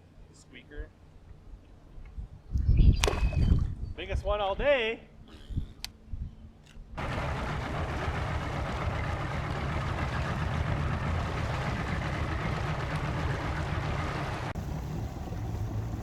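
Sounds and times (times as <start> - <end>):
outboard engine rumble: 6.5 - 16.0
water rushing: 7.0 - 16.0.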